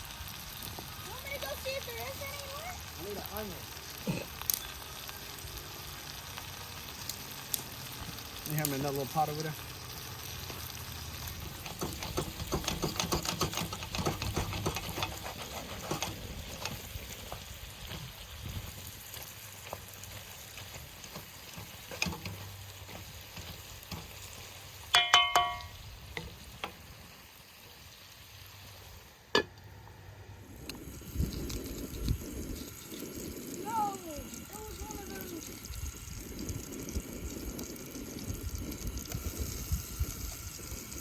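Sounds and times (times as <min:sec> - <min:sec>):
food sizzling in a pan: 0:00.0 - 0:41.0
utensil stirring and scraping: 0:11.4 - 0:18.2.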